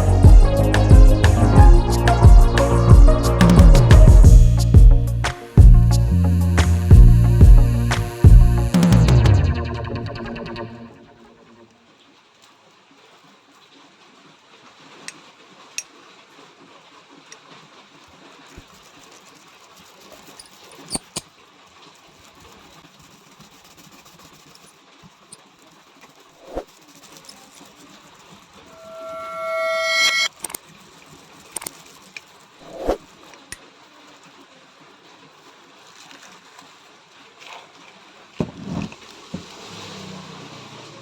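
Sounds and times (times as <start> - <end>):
metallic squeal: 28.7 - 30.4.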